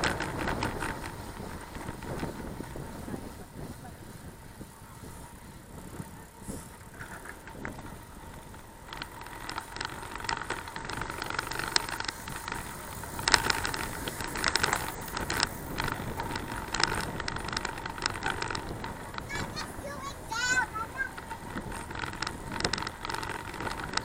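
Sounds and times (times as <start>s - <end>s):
bicycle rattling and clicking: 0.0s - 24.0s
bicycle rolling rumble: 0.0s - 24.0s.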